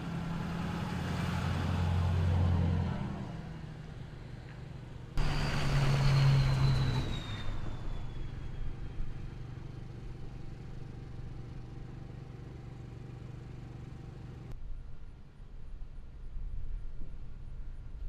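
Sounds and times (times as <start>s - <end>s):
motor vehicle passing by: 0.0s - 4.4s, 5.2s - 14.4s.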